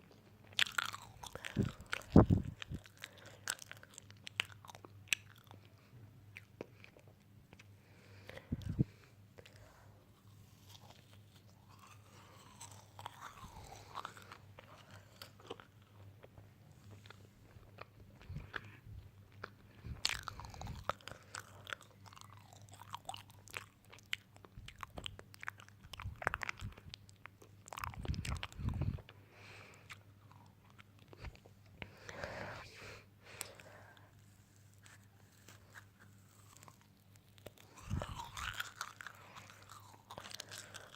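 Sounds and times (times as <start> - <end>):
crunchy food being chewed: 0.0 - 32.2, 33.4 - 40.9.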